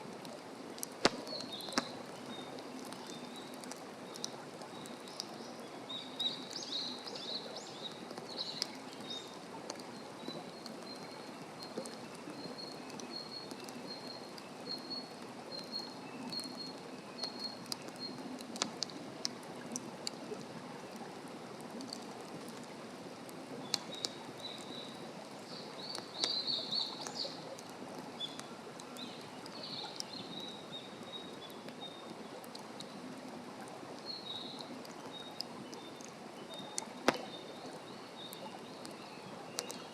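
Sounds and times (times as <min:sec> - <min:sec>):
campfire hissing and crackling: 0:00.0 - 0:39.9
forest birds singing: 0:01.1 - 0:18.2, 0:23.6 - 0:27.4, 0:28.2 - 0:32.0, 0:34.0 - 0:39.9.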